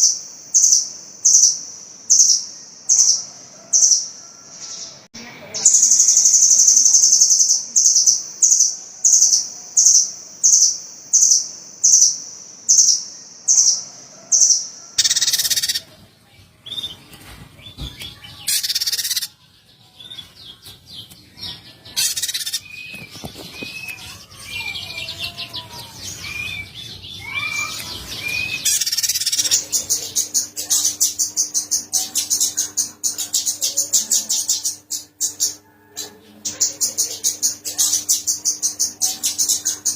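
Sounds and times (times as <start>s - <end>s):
small songbird calling: 17.7s - 19.4s, 20.0s - 35.6s.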